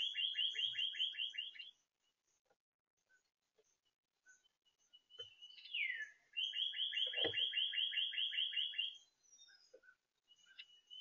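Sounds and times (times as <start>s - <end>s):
songbird whistling downslurred notes: 0.0s - 1.8s, 5.0s - 9.6s, 10.6s - 11.0s.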